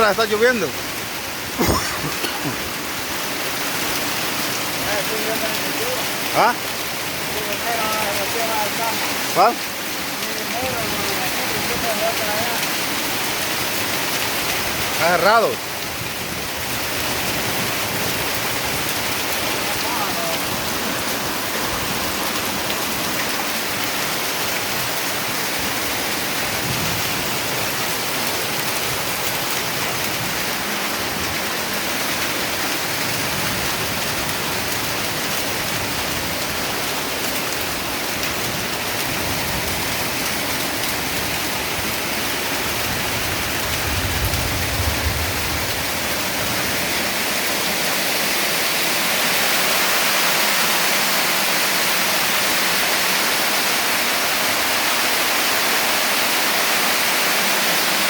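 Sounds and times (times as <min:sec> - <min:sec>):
heavy rain: 0:00.0 - 0:58.0
low thunder rumble: 0:42.9 - 0:46.8.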